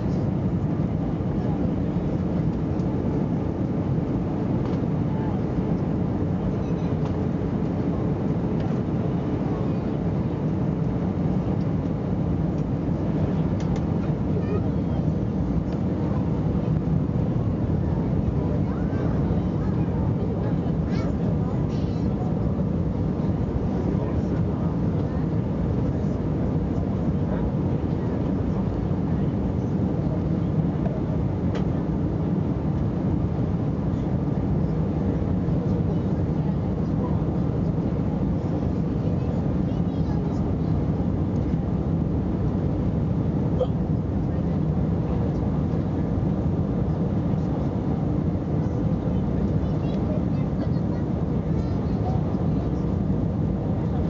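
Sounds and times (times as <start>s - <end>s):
airliner cabin engine drone: 0.0s - 54.0s
faint tick: 13.6s - 14.1s.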